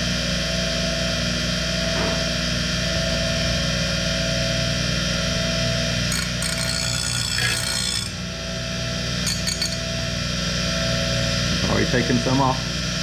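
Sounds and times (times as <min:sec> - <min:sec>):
bench grinder humming: 0:05.9 - 0:08.4, 0:09.2 - 0:10.2
blade grinding on stone wheel: 0:06.0 - 0:08.4, 0:09.2 - 0:10.2.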